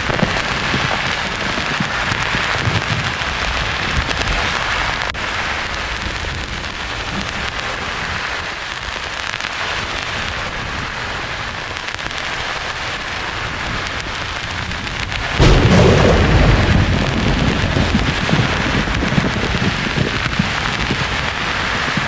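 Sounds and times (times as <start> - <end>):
thunder clap: 13.8 - 22.0.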